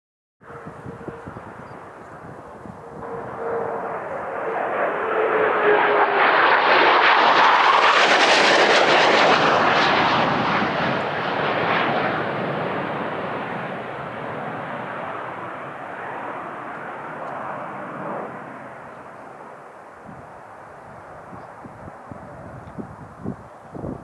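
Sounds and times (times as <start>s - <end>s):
jets flying past low: 0.4s - 23.2s
falling jet whine: 0.5s - 19.4s.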